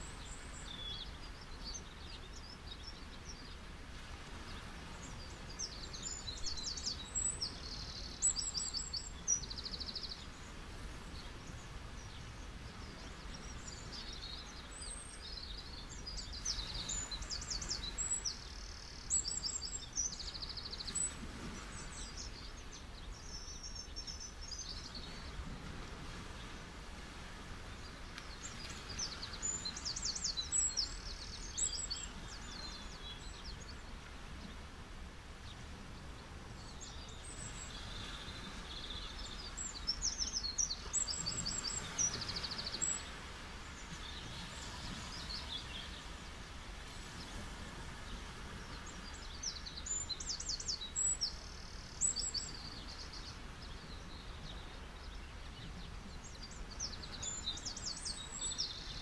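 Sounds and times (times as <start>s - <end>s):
beach waves washing: 24.3s - 59.0s.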